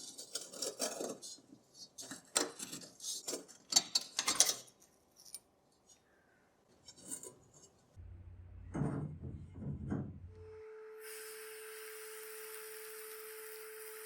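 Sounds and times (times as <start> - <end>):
low hum: 8.0 - 11.0.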